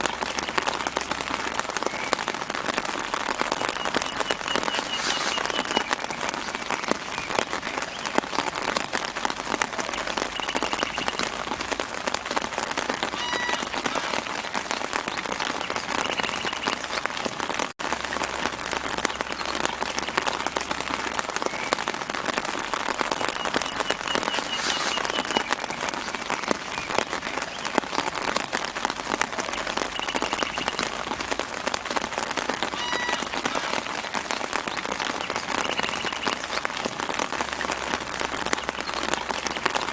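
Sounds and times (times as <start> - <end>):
light rain pattering on leaves: 0.0 - 39.9
faint bird chirps: 3.6 - 6.4, 23.4 - 25.8, 30.0 - 30.8, 35.2 - 36.4.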